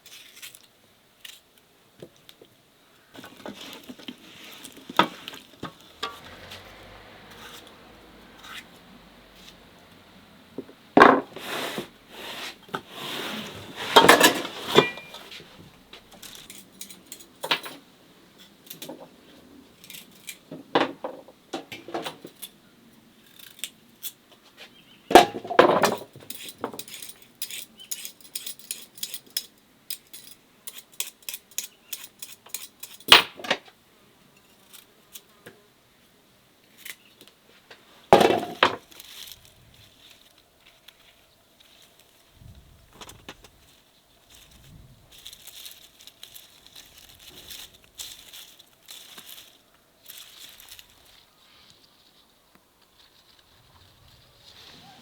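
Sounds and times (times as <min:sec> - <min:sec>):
glass and kitchenware clinking: 0:14.1 - 0:15.2.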